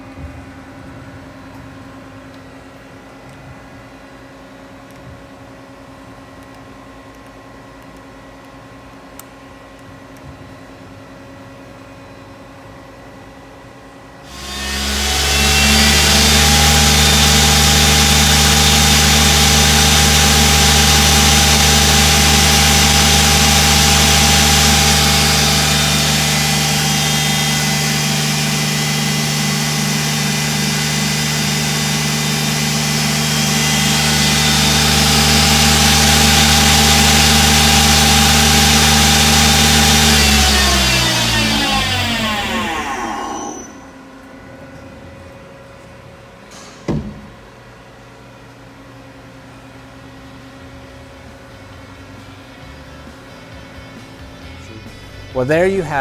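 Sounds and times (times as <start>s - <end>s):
click: 4.9s - 5.1s, 6.4s - 8.6s, 9.2s - 9.9s
machine hum: 14.3s - 43.9s
lathe spindle humming and whining: 14.3s - 44.0s.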